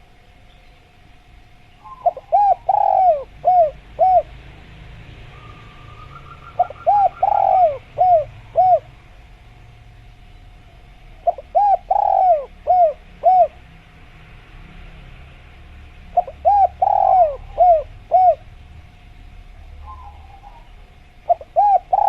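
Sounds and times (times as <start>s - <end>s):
dove cooing: 1.8s - 4.5s, 5.3s - 9.2s, 11.0s - 13.6s, 16.1s - 18.5s, 19.7s - 22.0s.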